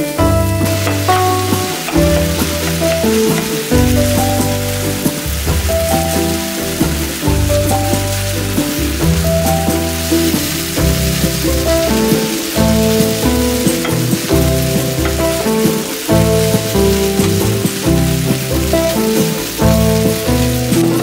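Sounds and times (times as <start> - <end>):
background music with bass line: 0.0 - 21.0
food sizzling in a frying pan: 0.0 - 21.0
wooden spatula scraping a pan: 0.2 - 21.0.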